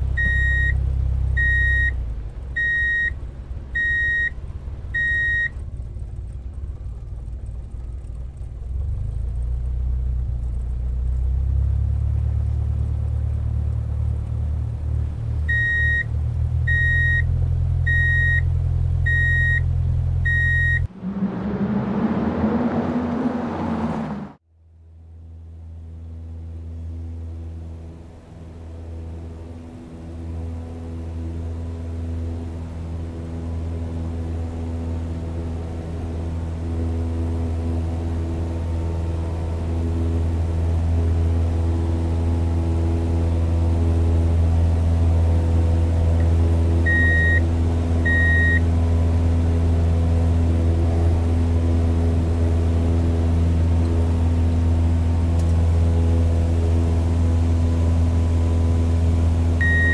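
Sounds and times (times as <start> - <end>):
bulldozer engine droning: 0.0 - 59.9
short high-pitched beeps: 0.2 - 0.7, 59.6 - 59.9.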